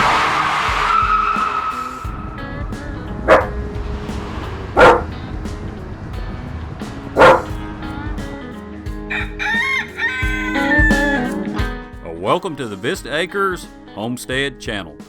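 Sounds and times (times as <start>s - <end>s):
background music: 0.0s - 15.0s
dog barking loudly: 3.3s - 3.5s, 4.8s - 5.1s, 7.2s - 7.5s.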